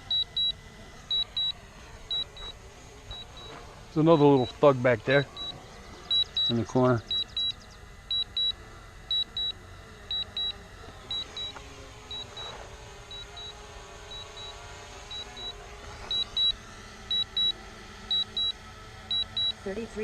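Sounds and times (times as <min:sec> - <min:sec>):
remote controller double beeps: 0:05.2 - 0:12.5.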